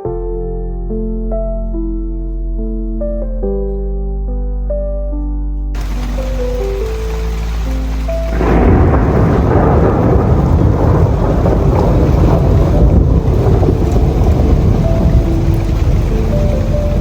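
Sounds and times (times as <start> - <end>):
soft music: 0.0 - 17.0
heavy rain: 5.8 - 17.0
thunder rumbling: 5.8 - 17.0.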